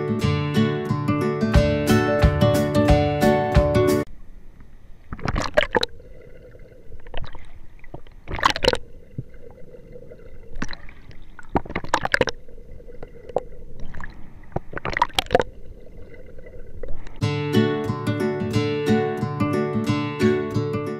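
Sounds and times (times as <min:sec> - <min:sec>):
muffled water splashing and bubbling: 0:05.0 - 0:17.2.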